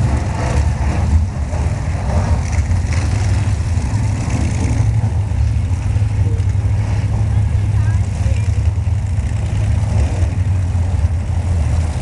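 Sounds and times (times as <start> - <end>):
stock car engines rumbling: 0.0 - 12.0.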